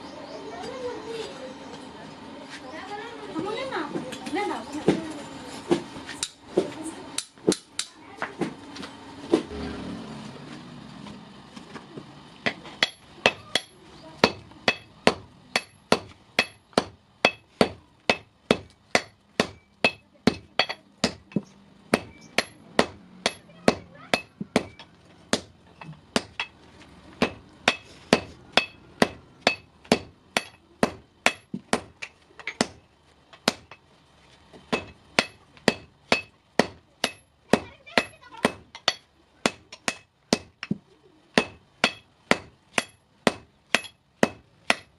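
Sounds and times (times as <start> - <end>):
hammer striking steel on anvil: 12.4 - 26.6, 27.2 - 32.8, 34.7 - 37.3, 38.0 - 40.8, 41.4 - 44.9.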